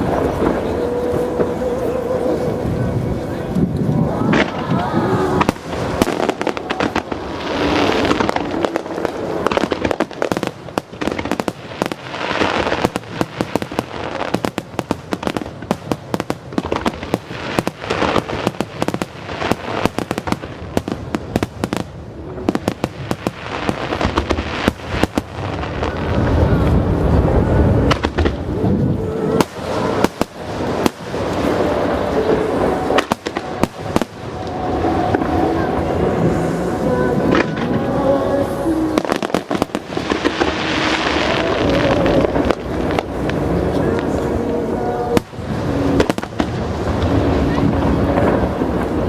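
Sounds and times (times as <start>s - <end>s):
deep firework booms: 2.6s - 38.0s, 45.1s - 49.0s
firework shell bursts and crackling: 3.6s - 26.0s, 29.4s - 35.4s.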